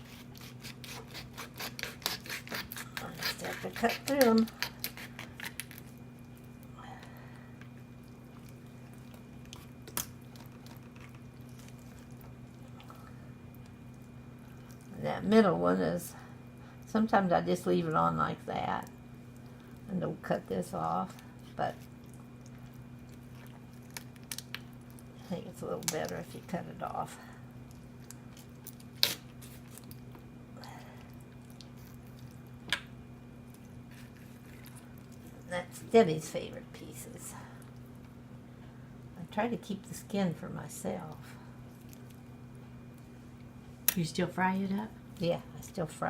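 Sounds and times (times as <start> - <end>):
knife cutting raw meat: 0.0 - 5.9
steady low hum: 0.0 - 46.0
bone cracking: 0.3 - 6.0, 8.2 - 13.9, 21.8 - 25.1.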